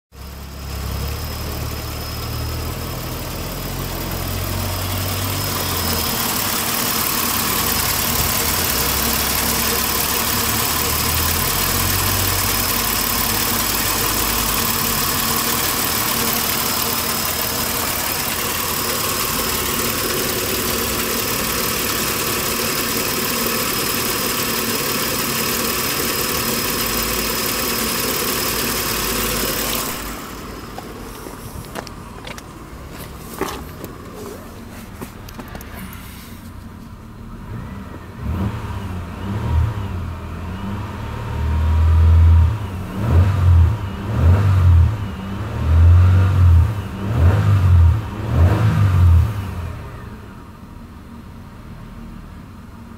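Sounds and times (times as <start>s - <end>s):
car engine idling: 0.2s - 39.3s.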